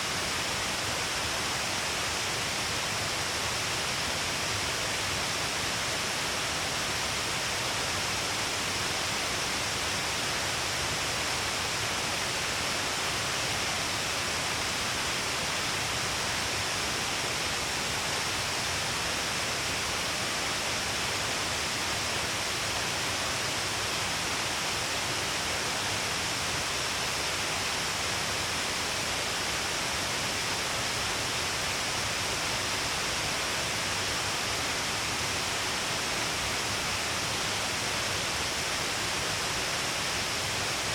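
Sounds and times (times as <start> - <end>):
waterfall rushing and splashing: 0.0 - 40.9.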